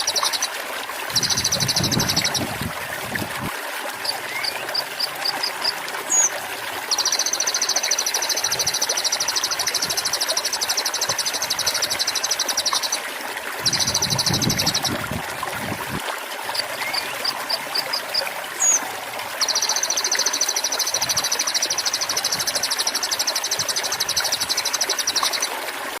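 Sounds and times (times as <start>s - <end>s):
songbird trilling and chirping: 0.0s - 0.5s, 1.1s - 2.5s, 6.1s - 6.3s, 6.9s - 13.0s, 13.6s - 15.0s, 18.6s - 18.8s, 19.4s - 25.5s
trickling water: 0.0s - 26.0s.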